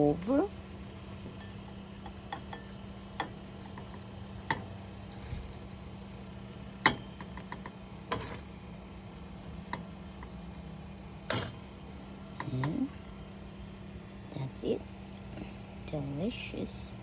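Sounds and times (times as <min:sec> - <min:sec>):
steady low hum: 0:00.0 - 0:17.0
utensil clinking against bowl: 0:01.3 - 0:04.7.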